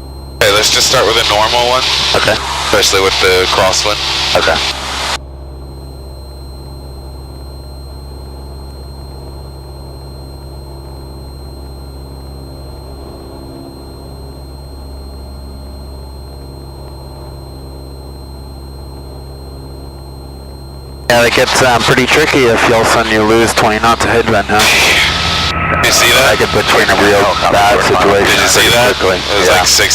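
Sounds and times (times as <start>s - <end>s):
thin high whine: 0.0s - 29.9s
aircraft engine and propeller droning: 9.8s - 29.9s.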